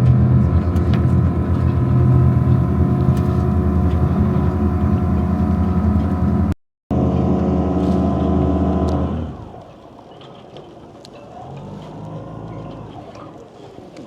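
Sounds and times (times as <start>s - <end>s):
boat engine running: 0.0s - 9.9s.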